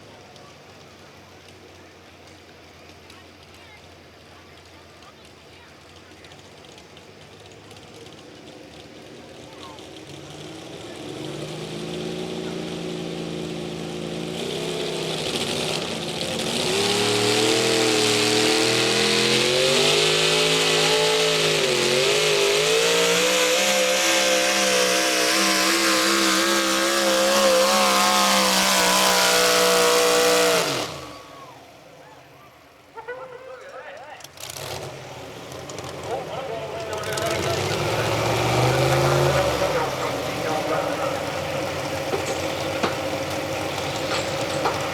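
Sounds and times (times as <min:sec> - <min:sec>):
truck engine at full throttle: 0:00.0 - 0:44.9.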